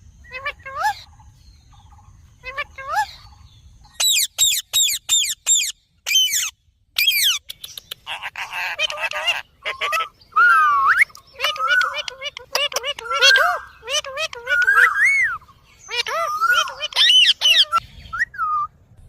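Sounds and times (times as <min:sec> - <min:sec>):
parakeet raspy squawk: 0:04.0 - 0:07.4, 0:08.0 - 0:10.8, 0:11.4 - 0:17.8
parakeet screeching: 0:04.0 - 0:07.4, 0:08.1 - 0:17.8.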